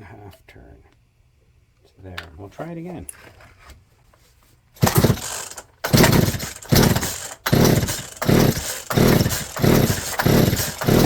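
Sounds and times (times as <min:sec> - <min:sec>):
chainsaw engine cranking: 0:04.8 - 0:11.0
recoil starter cord pulls: 0:04.8 - 0:11.0.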